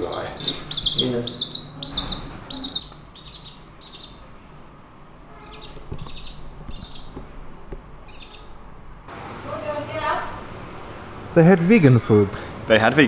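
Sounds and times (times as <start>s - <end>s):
chick cheeping: 0.0s - 4.3s, 5.3s - 7.2s.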